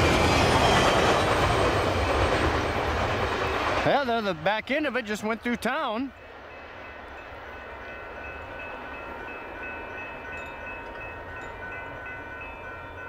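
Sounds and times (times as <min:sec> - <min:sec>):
freight train rumbling past: 0:00.0 - 0:13.0.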